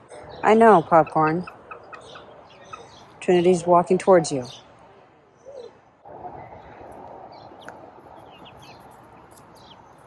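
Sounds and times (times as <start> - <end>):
chicks chirping: 0.2 - 3.6, 7.3 - 10.0.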